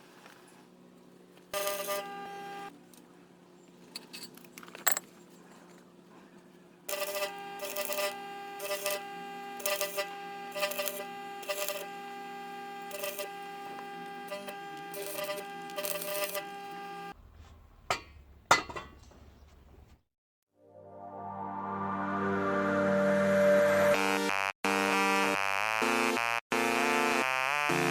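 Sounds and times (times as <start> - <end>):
welding machine humming: 1.4 - 2.7, 6.9 - 17.2
crackling welding arc: 1.5 - 2.7, 6.9 - 17.2.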